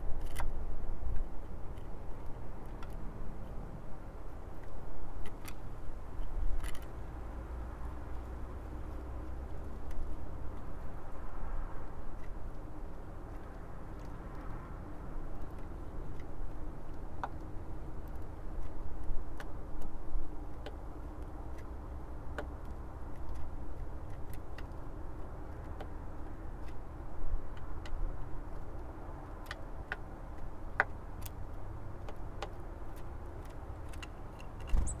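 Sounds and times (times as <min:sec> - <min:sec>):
bird pecking and tapping: 0:27.5 - 0:35.0
low rumble: 0:34.7 - 0:35.0.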